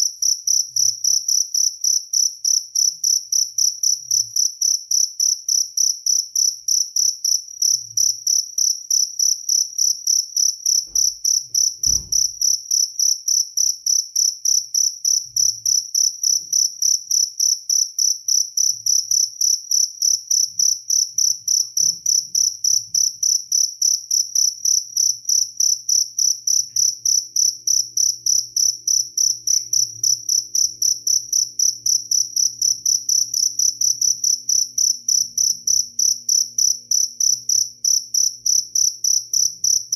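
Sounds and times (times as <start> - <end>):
field cricket chirping: 0.0 - 39.9
brief low thump: 11.8 - 12.4.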